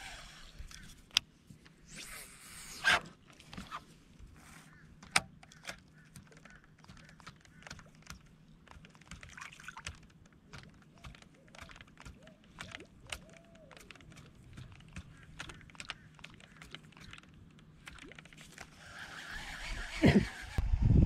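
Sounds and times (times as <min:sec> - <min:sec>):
small clicks and taps: 0:05.0 - 0:18.7.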